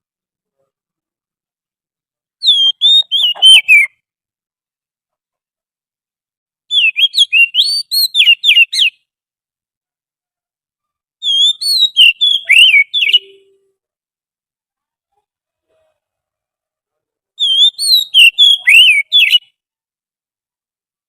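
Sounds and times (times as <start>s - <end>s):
bird whistling song: 2.4s - 4.0s, 6.7s - 9.1s, 11.2s - 13.6s, 17.4s - 19.6s.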